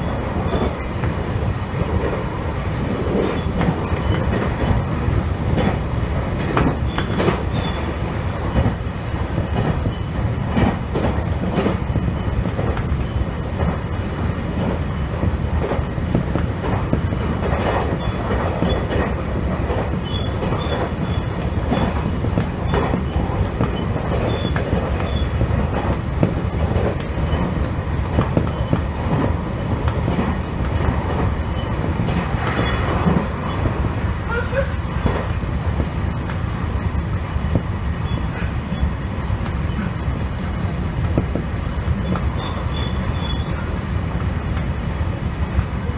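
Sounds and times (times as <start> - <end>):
train rumble: 0.0 - 45.9
faint high squeal: 42.3 - 43.6.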